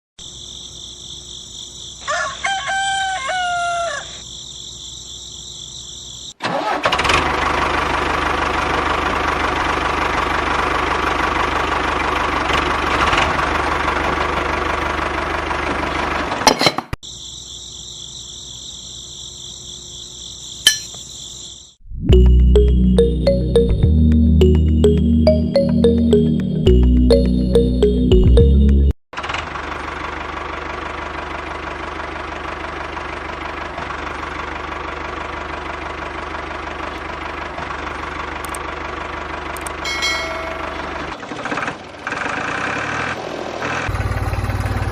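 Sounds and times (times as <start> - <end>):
rooster crowing: 2.0 - 4.2
click: 38.4 - 38.6, 39.6 - 39.8.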